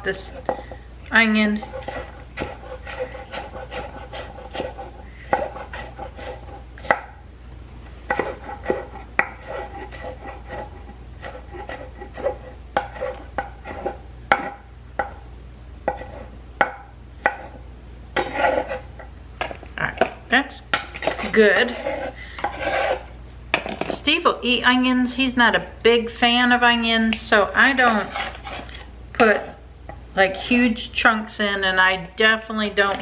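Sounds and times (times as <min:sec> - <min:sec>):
knife scraping on board: 0:01.6 - 0:07.1, 0:08.1 - 0:14.6, 0:15.9 - 0:16.3, 0:18.2 - 0:19.1, 0:21.0 - 0:23.1, 0:27.6 - 0:29.5.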